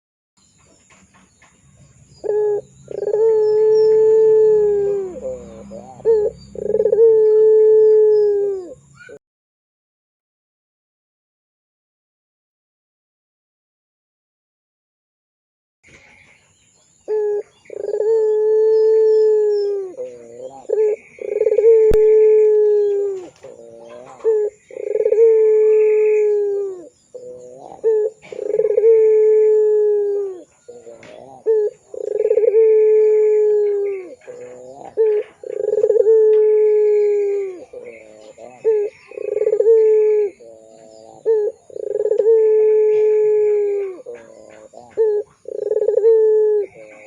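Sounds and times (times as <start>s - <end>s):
dove cooing: 2.1s - 9.2s, 17.1s - 47.0s.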